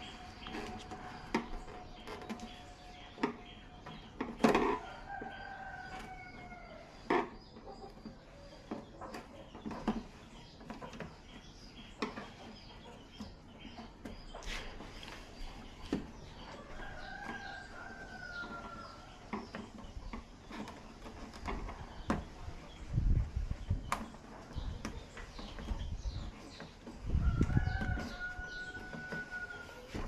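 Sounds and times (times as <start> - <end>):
rooster crowing: 27.2 - 29.9.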